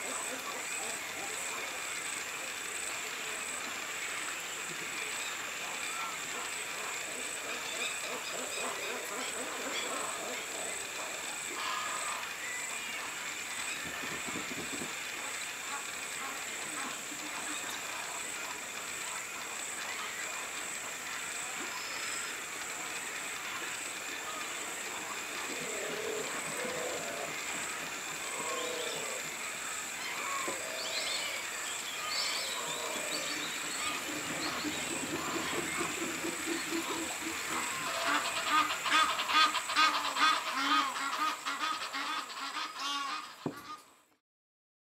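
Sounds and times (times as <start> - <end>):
bird calls: 0.0 - 43.8
steady hiss: 0.0 - 44.1.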